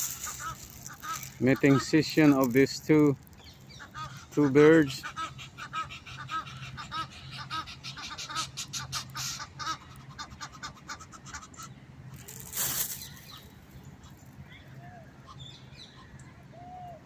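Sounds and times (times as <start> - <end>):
waterfowl calling: 0.0 - 2.7, 3.7 - 13.5.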